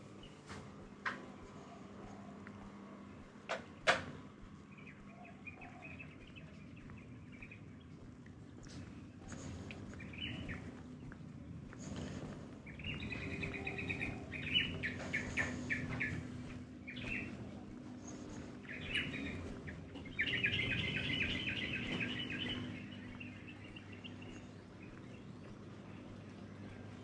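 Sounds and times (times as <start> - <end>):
small birds chirping: 0.0 - 27.0
steady low hum: 0.0 - 27.0.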